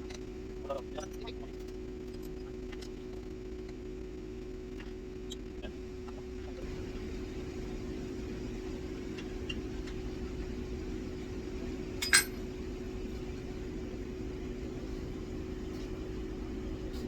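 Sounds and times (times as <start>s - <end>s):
machinery hum: 0.0s - 17.0s
sharp metallic clink: 12.0s - 12.4s.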